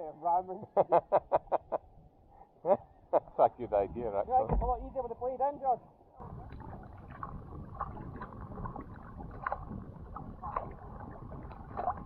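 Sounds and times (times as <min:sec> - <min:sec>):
water splashing around kayaks: 0:03.8 - 0:05.2, 0:06.2 - 0:12.0
steady wash of water: 0:06.2 - 0:12.0.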